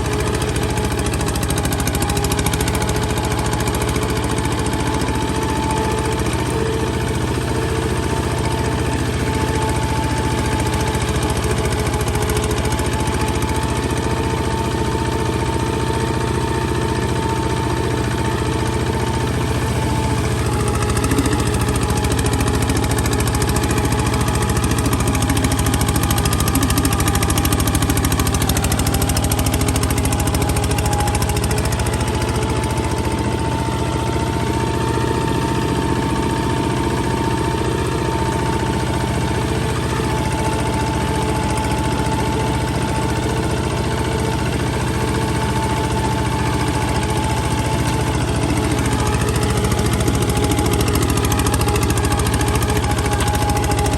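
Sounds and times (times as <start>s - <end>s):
diesel engine knocking: 0.0s - 53.9s.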